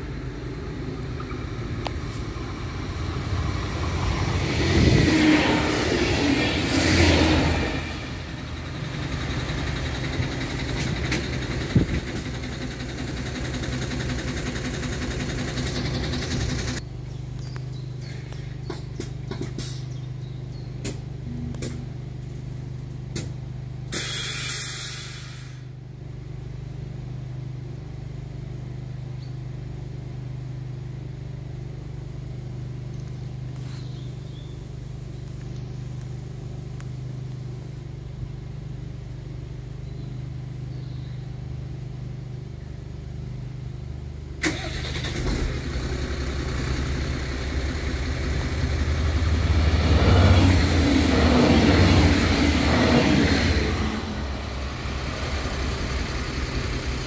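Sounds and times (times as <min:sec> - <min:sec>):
steady low hum: 0:00.0 - 0:06.8, 0:25.4 - 0:44.4, 0:45.1 - 0:57.0
train rumble: 0:00.0 - 0:16.8, 0:18.0 - 0:24.1, 0:43.4 - 0:57.0
short hiss: 0:23.9 - 0:25.7.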